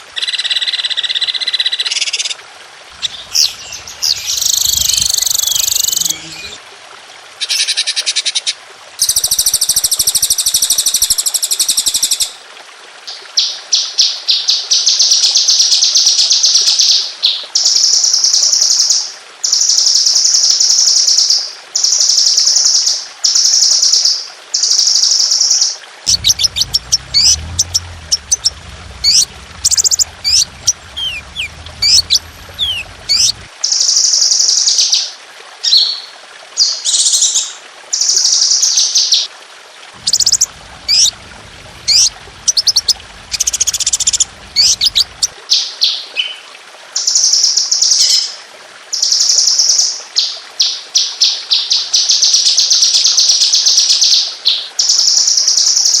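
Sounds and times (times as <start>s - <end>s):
low hum: 2.9s - 6.6s, 26.1s - 33.5s, 40.0s - 45.4s
songbird trills and whistles: 3.1s - 6.6s.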